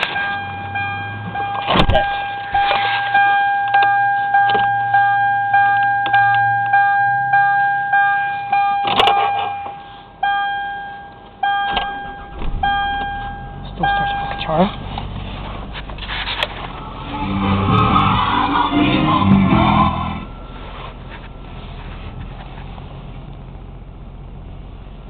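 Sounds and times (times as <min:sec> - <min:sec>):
dashboard warning chime dinging: 0:00.0 - 0:15.0, 0:16.6 - 0:22.3
car engine starting and idling: 0:00.0 - 0:25.0
short clunks: 0:11.6 - 0:16.9.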